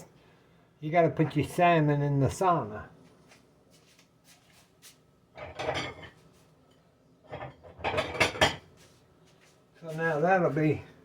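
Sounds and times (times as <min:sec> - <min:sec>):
utensils clinking on a dish: 0:05.4 - 0:06.2, 0:07.3 - 0:08.7.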